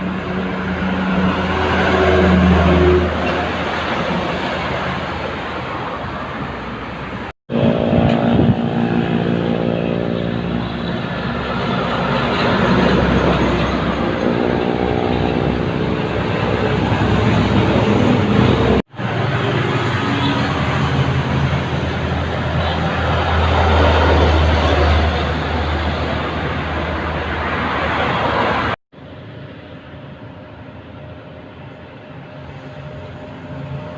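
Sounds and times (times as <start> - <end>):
diesel truck engine running: 6.4 - 27.3.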